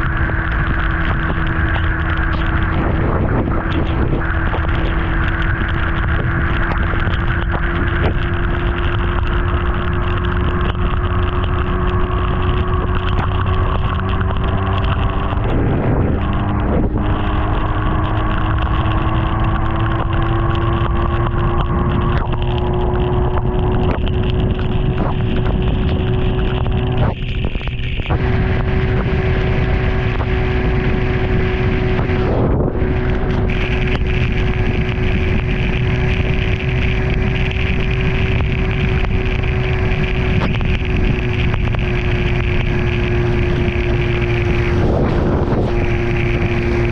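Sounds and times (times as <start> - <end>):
motorcycle engine running: 0.0 - 46.9
wind buffeting microphone: 0.0 - 46.9.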